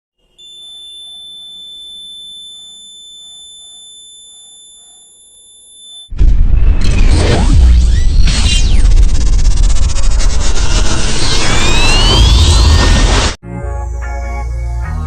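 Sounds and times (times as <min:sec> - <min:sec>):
high-pitched alarm buzzer tone: 0:00.2 - 0:06.1.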